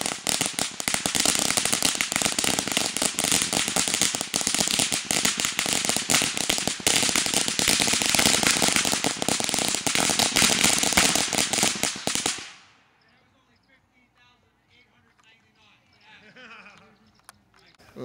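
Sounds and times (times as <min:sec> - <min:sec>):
firecrackers popping: 0:00.0 - 0:12.8.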